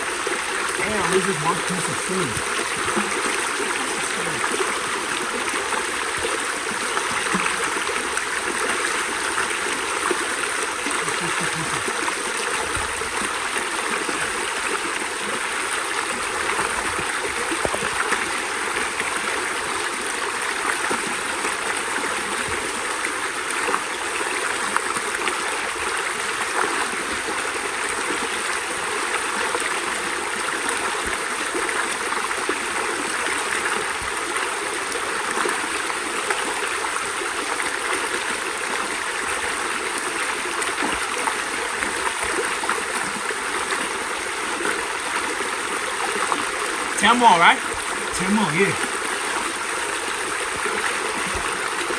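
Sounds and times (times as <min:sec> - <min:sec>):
stream water flowing: 0:00.0 - 0:51.9.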